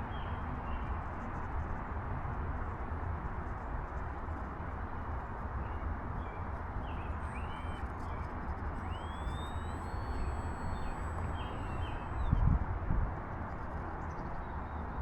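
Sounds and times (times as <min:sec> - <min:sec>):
thin high tone: 0:07.2 - 0:07.8, 0:08.8 - 0:12.3
bird chirps: 0:07.2 - 0:12.4.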